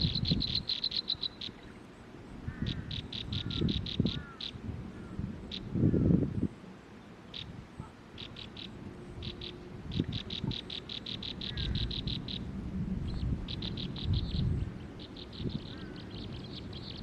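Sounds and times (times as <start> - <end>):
bird calling high repeated notes: 0.0 - 1.8, 7.3 - 12.5, 13.5 - 17.0.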